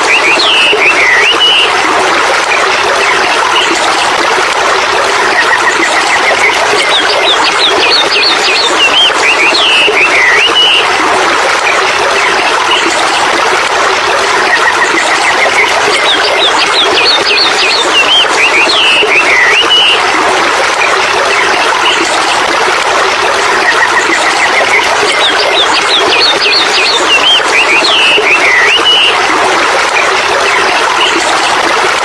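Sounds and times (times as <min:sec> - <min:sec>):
birds chirping and trilling: 0:24.3 - 0:29.2.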